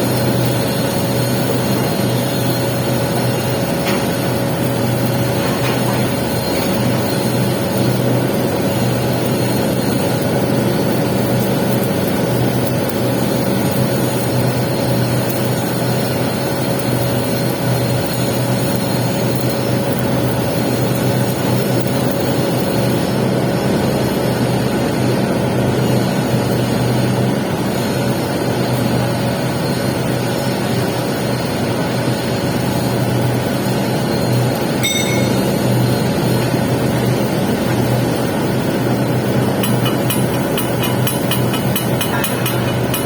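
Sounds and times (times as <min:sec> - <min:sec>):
welding arc crackling: 0:00.0 - 0:23.4, 0:32.3 - 0:43.0.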